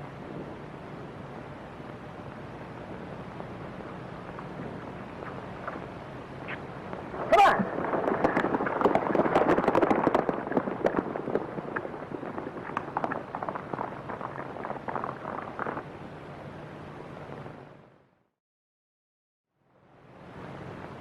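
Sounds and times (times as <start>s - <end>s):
horses galloping: 0.1s - 16.6s.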